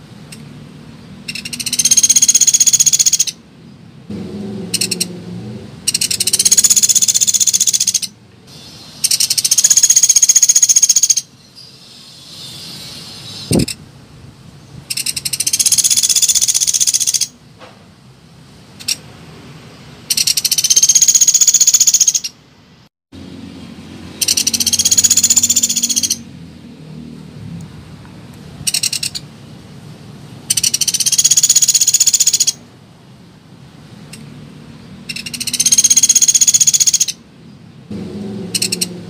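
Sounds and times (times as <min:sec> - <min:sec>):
woodpecker rattling trill: 0:01.3 - 0:03.4, 0:04.8 - 0:05.1, 0:05.9 - 0:08.2, 0:09.0 - 0:11.3, 0:14.9 - 0:17.3, 0:20.1 - 0:22.4, 0:24.2 - 0:26.2, 0:28.7 - 0:29.2, 0:30.5 - 0:32.6, 0:35.1 - 0:37.2, 0:38.5 - 0:39.0.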